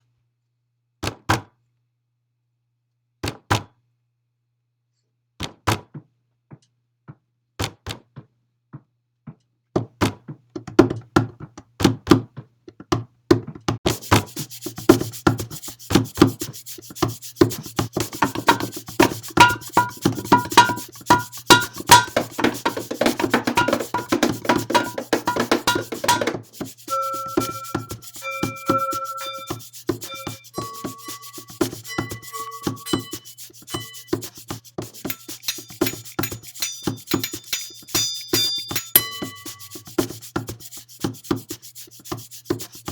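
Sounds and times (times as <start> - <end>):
sharp clicks and knocks: 17.9 - 39.8.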